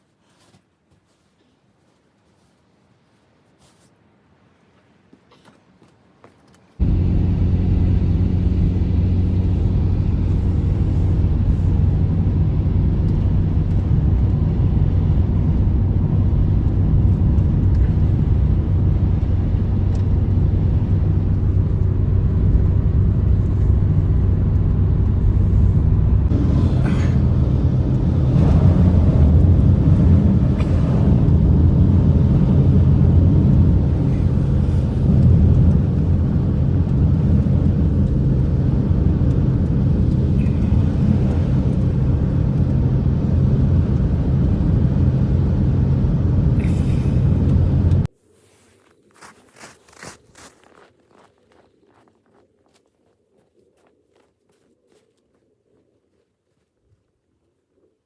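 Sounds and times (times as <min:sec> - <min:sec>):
blizzard wind rumbling: 0:06.8 - 0:51.2.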